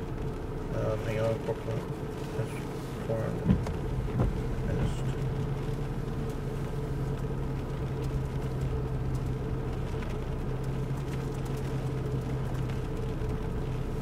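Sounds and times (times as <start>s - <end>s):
vehicle engine hum: 0.0s - 14.0s.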